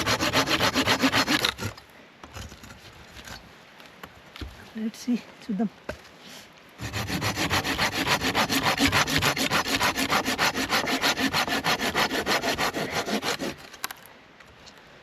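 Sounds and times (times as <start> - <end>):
hand saw cutting a log: 0.0 - 1.8, 6.8 - 13.7.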